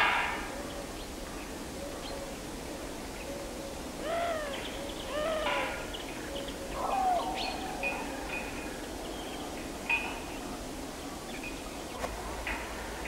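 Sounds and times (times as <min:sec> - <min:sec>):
birds calling: 0:03.7 - 0:10.4.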